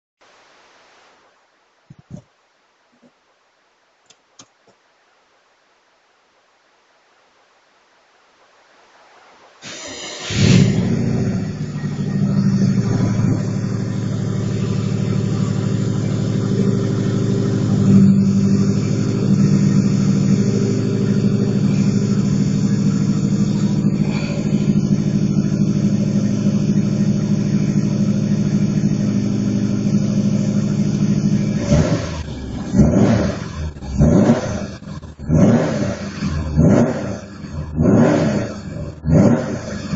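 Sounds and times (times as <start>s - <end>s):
car engine starting and idling: 9.6s - 39.9s.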